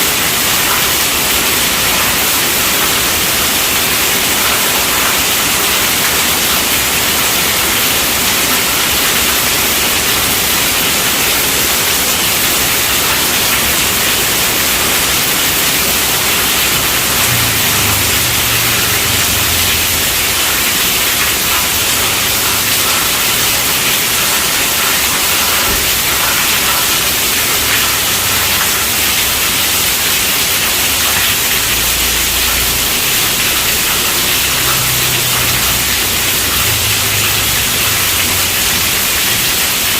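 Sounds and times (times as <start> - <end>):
heavy rainfall: 0.0 - 39.9.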